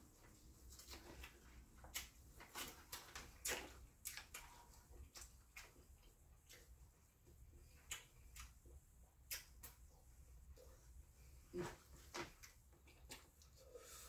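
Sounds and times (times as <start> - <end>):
wet chewing and lip-smacking: 0.8 - 10.0.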